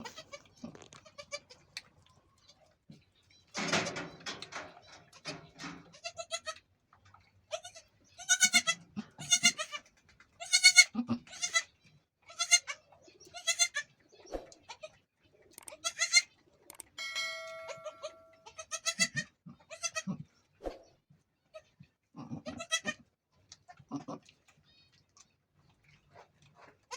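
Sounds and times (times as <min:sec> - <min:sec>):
goat bleating: 0:00.0 - 0:01.6, 0:05.9 - 0:06.6, 0:07.5 - 0:09.8, 0:10.4 - 0:11.7, 0:12.3 - 0:12.8, 0:13.4 - 0:13.8, 0:15.7 - 0:16.2, 0:18.4 - 0:20.2, 0:22.2 - 0:23.0.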